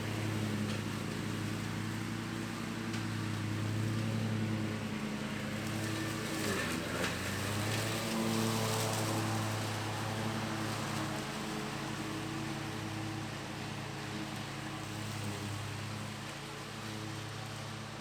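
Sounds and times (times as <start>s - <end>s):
mower engine running: 0.0s - 18.0s.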